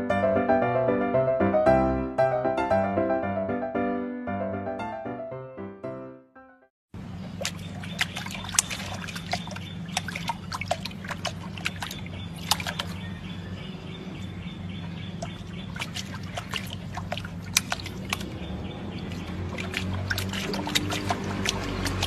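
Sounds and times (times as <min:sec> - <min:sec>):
puppy splashing water: 0:07.0 - 0:22.0.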